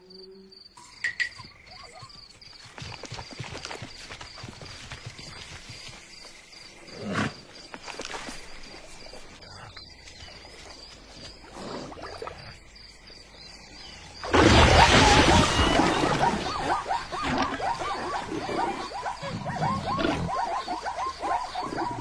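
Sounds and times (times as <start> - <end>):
animal calls with wavering pitch: 14.5 - 22.0.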